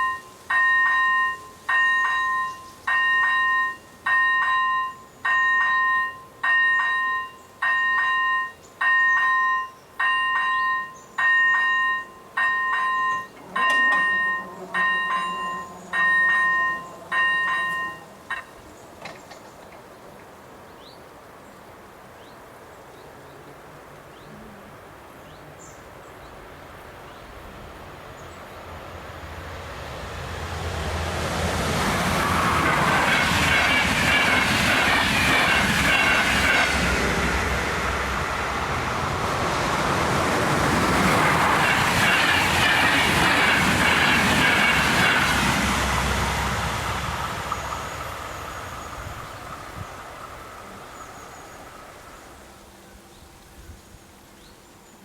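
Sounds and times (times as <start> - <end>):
level-crossing bell two-tone ding: 0.0 - 18.5
train passing with clattering wheels: 0.0 - 54.9.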